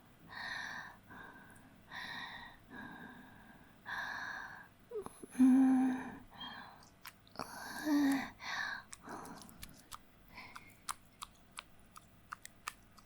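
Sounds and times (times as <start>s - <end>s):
woman breathing heavily: 0.0s - 10.8s
woman moaning: 7.4s - 8.4s.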